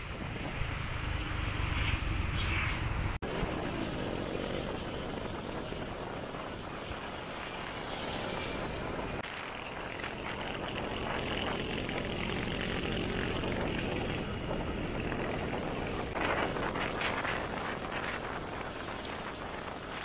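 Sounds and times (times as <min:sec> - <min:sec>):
road and wind rush: 0:00.0 - 0:20.0
motorcycle engine running: 0:08.0 - 0:20.0.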